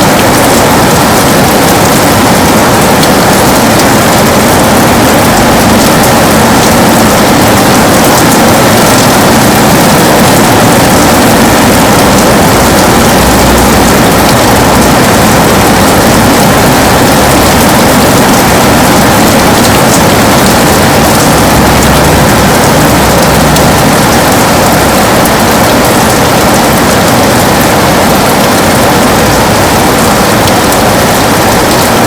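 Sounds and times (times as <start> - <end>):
heavy rain on a window: 0.0 - 32.0.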